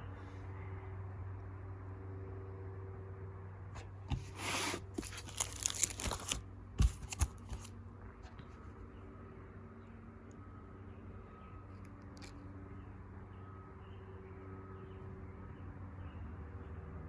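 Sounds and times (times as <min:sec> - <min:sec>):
low steady hum: 0:00.0 - 0:17.0
paper rustling and sliding: 0:03.8 - 0:07.7.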